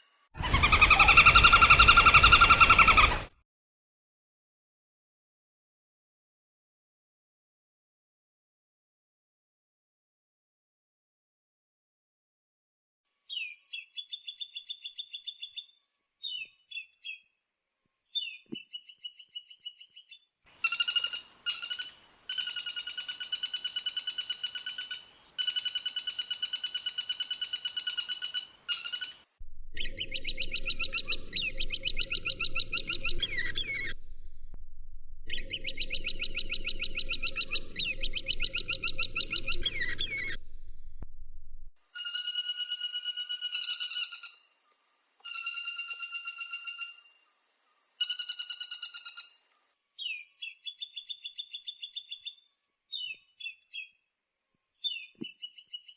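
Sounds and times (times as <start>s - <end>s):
woodpecker calls: 0.4s - 3.3s, 18.2s - 34.4s, 35.2s - 41.1s, 45.2s - 47.2s, 48.0s - 52.4s
low steady hum: 29.4s - 41.8s.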